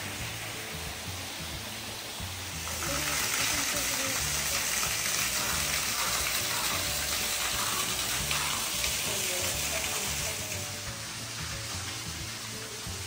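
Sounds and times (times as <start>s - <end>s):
background music with bass line: 0.0s - 13.0s
water splashing into pool: 2.6s - 10.8s.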